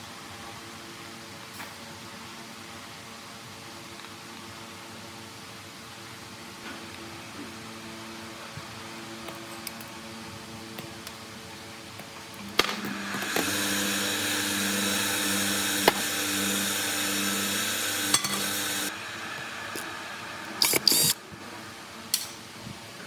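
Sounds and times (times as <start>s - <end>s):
small electric motor humming: 12.4s - 21.9s.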